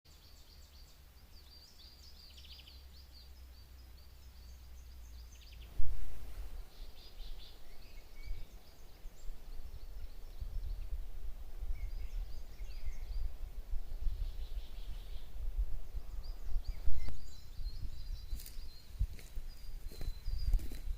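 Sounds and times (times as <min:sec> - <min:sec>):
small birds chirping: 0:00.1 - 0:20.9
low rumble: 0:05.1 - 0:18.3.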